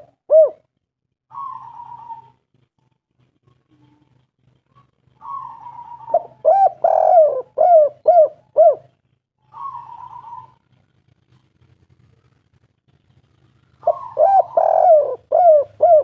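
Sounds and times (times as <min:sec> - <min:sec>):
dove cooing: 0:00.0 - 0:00.7, 0:01.3 - 0:02.5, 0:04.6 - 0:10.8, 0:13.7 - 0:16.0.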